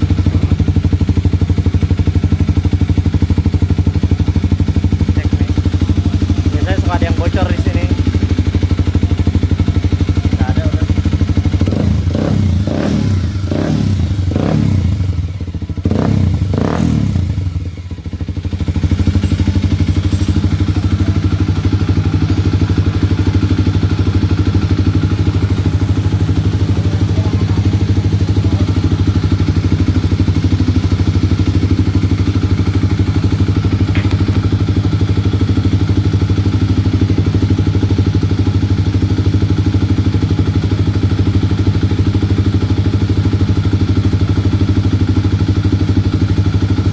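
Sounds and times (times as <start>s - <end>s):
motorcycle engine revving and idling: 0.0s - 46.9s.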